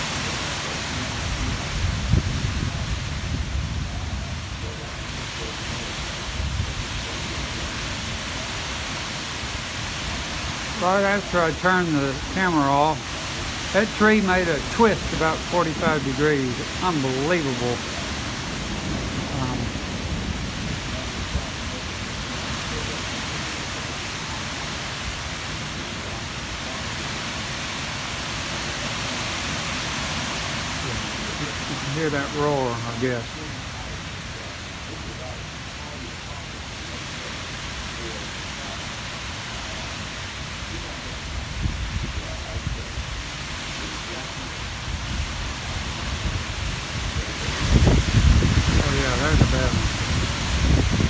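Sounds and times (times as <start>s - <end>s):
high winds rumbling: 0.0s - 35.4s, 40.3s - 51.0s
heavy rain: 0.0s - 51.0s.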